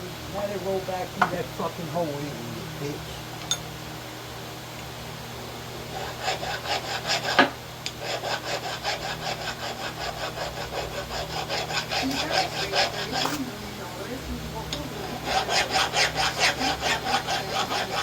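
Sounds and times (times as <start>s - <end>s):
low shop hum: 0.0s - 18.0s
hand tool scraping strokes: 6.0s - 13.6s, 15.2s - 18.0s.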